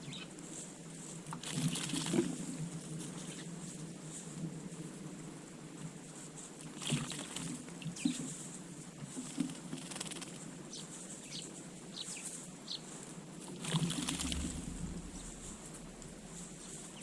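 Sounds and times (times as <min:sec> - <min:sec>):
small birds chirping: 0:00.0 - 0:00.4, 0:09.8 - 0:13.0
bird wings flapping and splashing: 0:01.3 - 0:02.6, 0:06.6 - 0:08.1, 0:09.2 - 0:10.4, 0:13.4 - 0:15.9.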